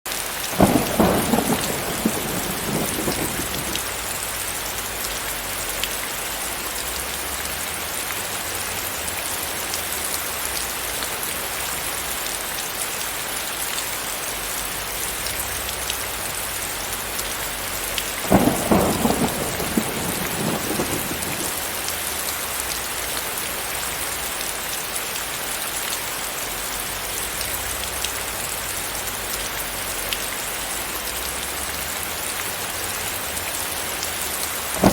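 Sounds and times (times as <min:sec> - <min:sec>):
steady rain falling: 0:00.1 - 0:34.9
low rumbles of thunder: 0:00.5 - 0:04.8, 0:18.2 - 0:21.9.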